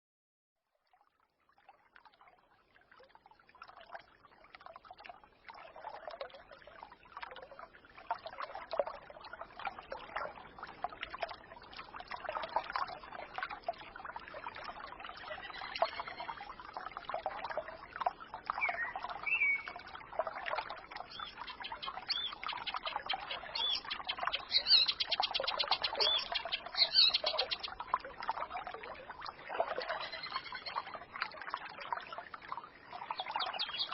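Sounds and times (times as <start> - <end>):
stream trickling and babbling: 0.6 - 33.9
songbirds chirping: 18.4 - 19.9, 21.0 - 27.8, 29.8 - 31.0, 32.9 - 33.9.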